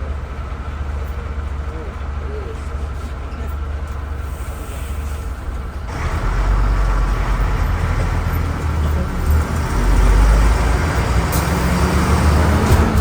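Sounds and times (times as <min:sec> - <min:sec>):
bus diesel engine under load: 0:00.0 - 0:13.0.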